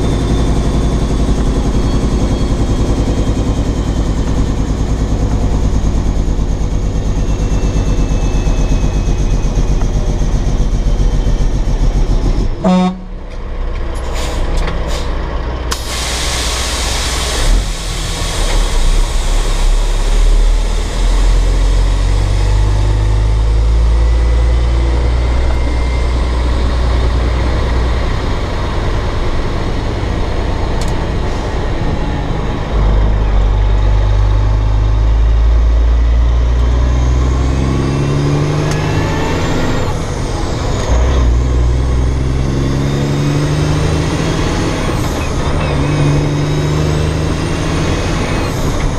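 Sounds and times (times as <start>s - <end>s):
diesel truck engine under load: 0.0s - 48.9s
short air hiss: 15.7s - 19.1s.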